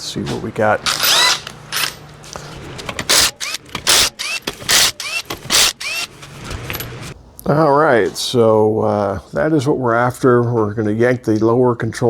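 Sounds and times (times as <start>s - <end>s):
impact wrench bursts: 0.8s - 2.0s, 2.7s - 7.2s.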